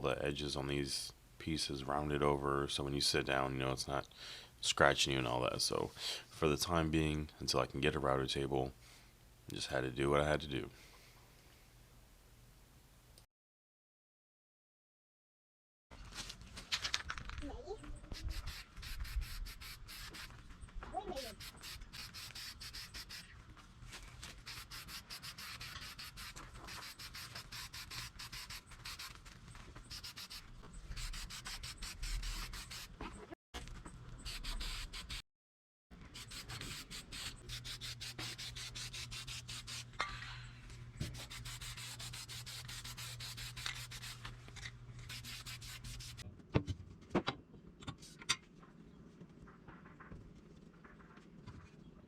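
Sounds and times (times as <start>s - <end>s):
wood being sanded: 18.1s - 20.4s, 21.2s - 23.3s, 24.4s - 29.2s, 29.8s - 32.9s, 34.3s - 35.2s, 36.2s - 39.9s, 41.0s - 44.2s, 45.1s - 46.2s.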